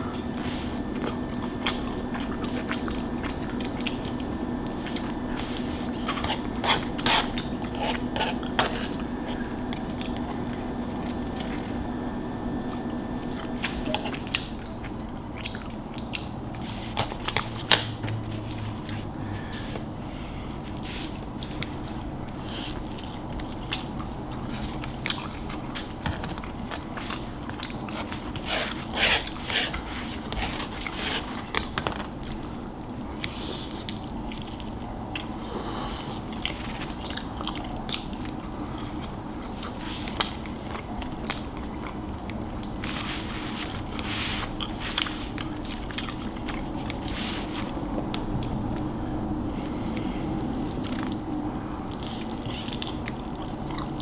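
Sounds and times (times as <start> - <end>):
person biting and chewing: 0.4 - 11.9, 12.6 - 19.1, 20.6 - 32.4.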